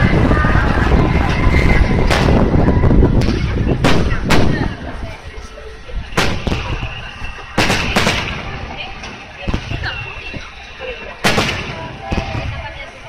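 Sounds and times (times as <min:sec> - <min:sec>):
low echoing rumble: 0:00.0 - 0:13.0
firework shells booming: 0:06.1 - 0:10.0, 0:11.2 - 0:12.6.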